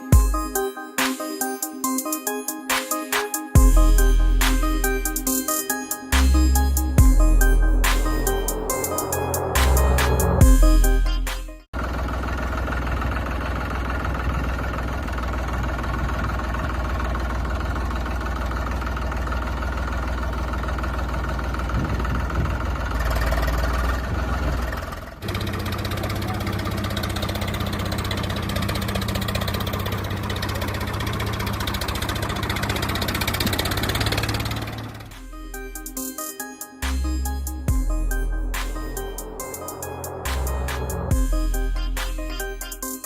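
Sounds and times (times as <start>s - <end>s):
tractor engine idling: 11.8s - 36.1s, 36.8s - 42.7s.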